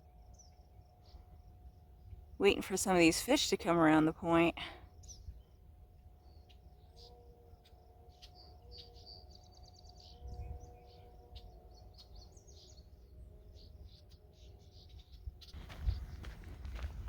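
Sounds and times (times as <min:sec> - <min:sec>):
small birds chirping: 0:08.2 - 0:17.0.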